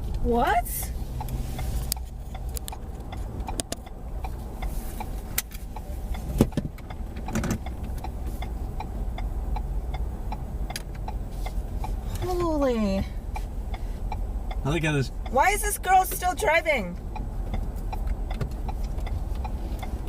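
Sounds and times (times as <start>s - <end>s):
car engine and road rumble: 0.0s - 20.0s
regular ticking: 0.0s - 20.0s.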